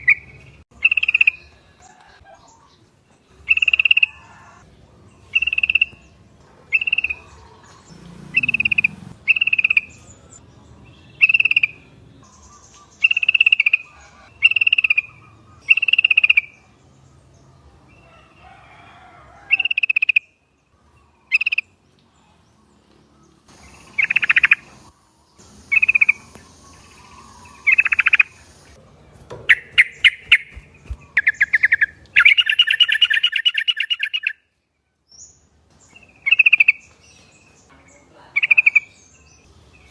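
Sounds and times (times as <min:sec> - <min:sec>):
bird calling bright repeated notes: 0:07.9 - 0:10.0, 0:25.7 - 0:28.4, 0:29.5 - 0:34.5.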